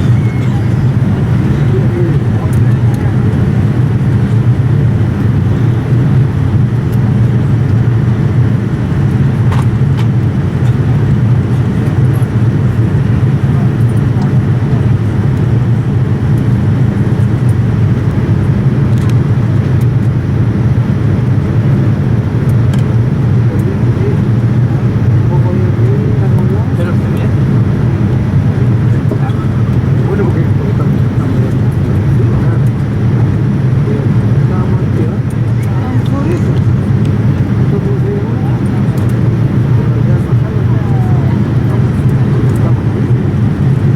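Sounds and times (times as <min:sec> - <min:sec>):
airliner cabin rumble: 0:00.0 - 0:43.9.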